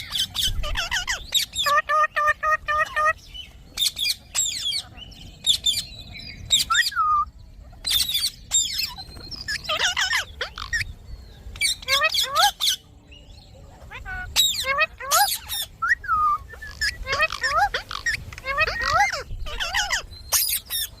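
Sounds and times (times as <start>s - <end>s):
parakeet chirping and whistling: 3.8s - 5.8s, 6.4s - 7.3s, 7.9s - 10.9s, 14.3s - 21.0s.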